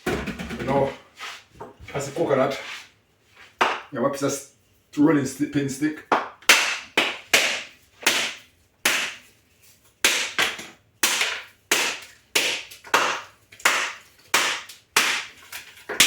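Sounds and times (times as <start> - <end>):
rolling pin knocking coconut: 6.1 - 9.2, 10.0 - 16.0.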